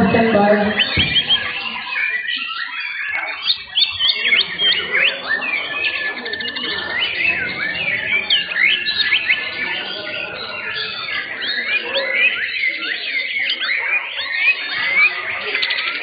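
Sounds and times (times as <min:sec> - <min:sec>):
songbirds whistling and chirping: 0:00.0 - 0:16.0
fast rattling bird trill: 0:00.2 - 0:16.0.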